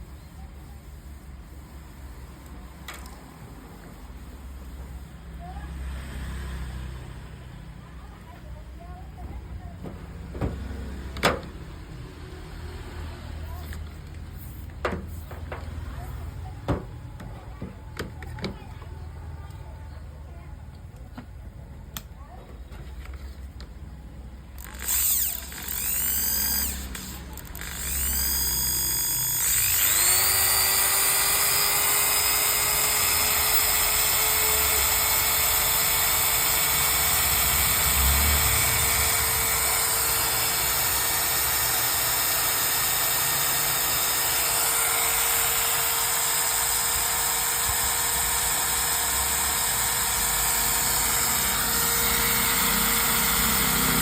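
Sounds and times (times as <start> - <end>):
electric drill motor whine: 24.6 - 54.0.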